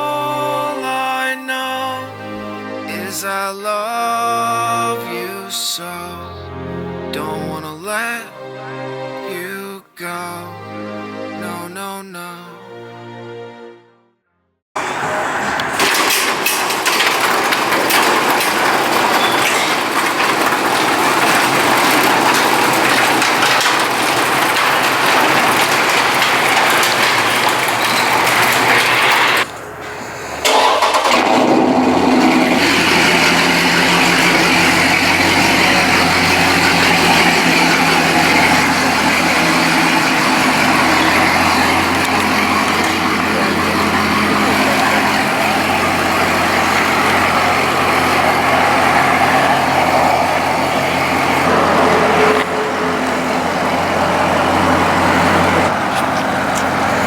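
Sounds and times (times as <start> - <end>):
loud rushing noise: 14.8 - 57.0
vehicle engine starting and idling: 14.8 - 57.0.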